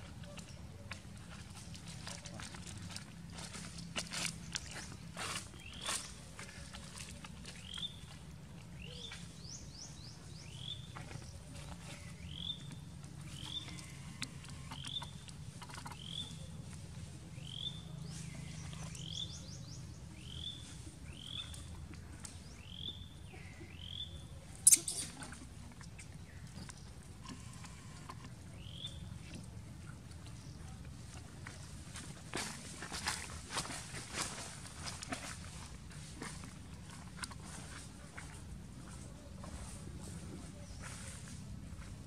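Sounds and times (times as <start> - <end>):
bird chirping: 22.5 - 25.2.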